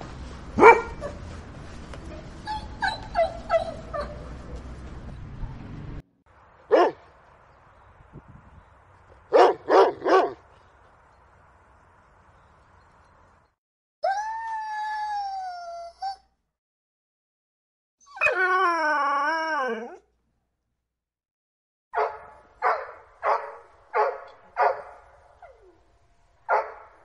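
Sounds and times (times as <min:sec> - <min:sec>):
dog barking: 0:00.6 - 0:01.0, 0:06.7 - 0:07.0, 0:09.3 - 0:10.4, 0:22.0 - 0:25.3, 0:26.5 - 0:27.0
dog howling: 0:18.1 - 0:20.0.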